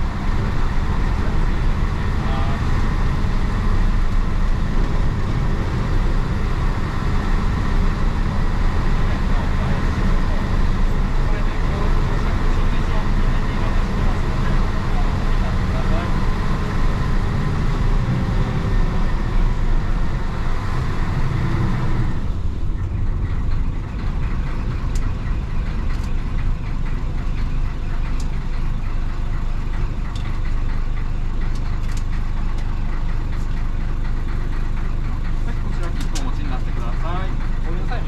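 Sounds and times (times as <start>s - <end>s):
diesel engine pulling hard: 0.0s - 38.0s
light clicks and rattles: 30.0s - 33.7s, 35.2s - 38.0s.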